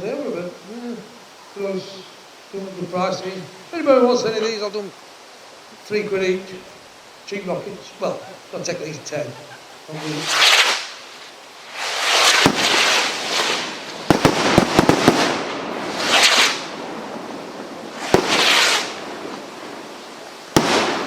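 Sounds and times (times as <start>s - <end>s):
firework rockets whooshing: 9.8s - 21.0s
firework cracks: 9.9s - 21.0s
firework bangs: 10.0s - 21.0s.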